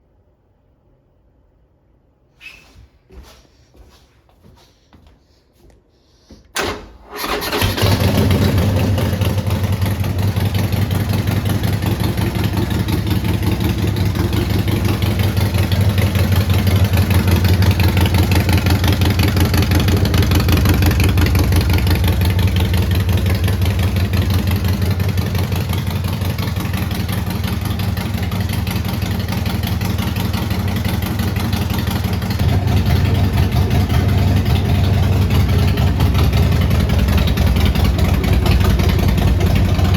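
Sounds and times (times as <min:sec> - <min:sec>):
motorcycle engine idling: 0:07.2 - 0:39.9.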